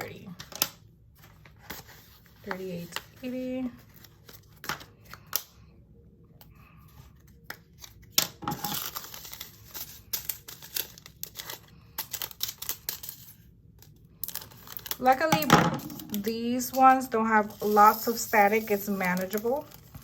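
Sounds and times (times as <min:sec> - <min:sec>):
plastic bags crinkling: 0:08.4 - 0:13.3, 0:14.2 - 0:20.0
tiny beads pattering into container: 0:14.3 - 0:19.9.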